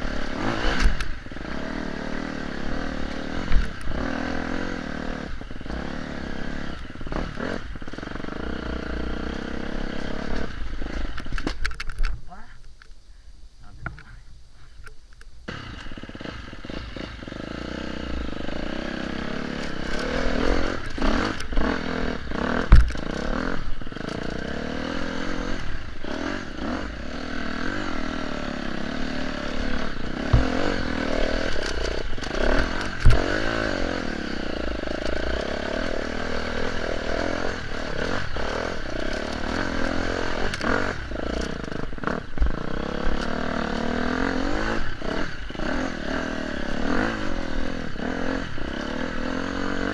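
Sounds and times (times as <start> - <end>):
motorcycle engine revving: 0.0 - 12.0, 15.5 - 49.9
sharp knocks and clatter: 22.6 - 23.3, 30.2 - 33.7.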